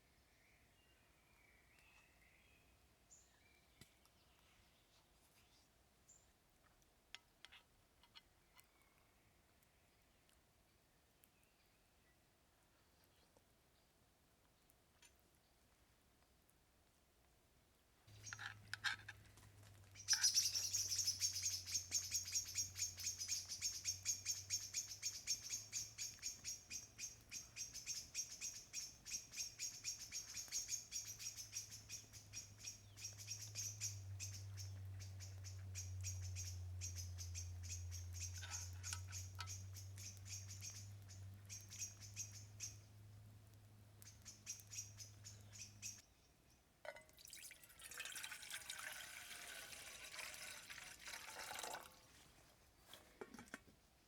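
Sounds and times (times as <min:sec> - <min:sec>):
small songbird chirping rapidly: 0:18.1 - 0:18.8, 0:19.8 - 0:46.6.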